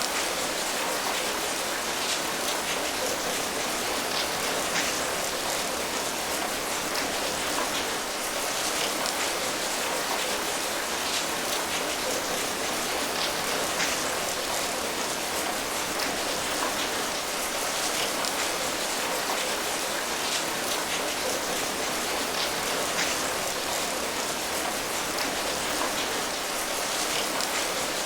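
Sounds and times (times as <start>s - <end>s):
patter of raindrops: 0.0s - 28.0s
steady rain hiss: 0.0s - 28.0s.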